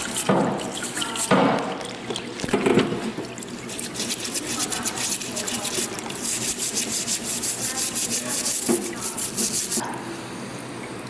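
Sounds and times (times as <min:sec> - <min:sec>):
brush scrubbing strokes: 0:00.0 - 0:01.4, 0:03.6 - 0:09.8.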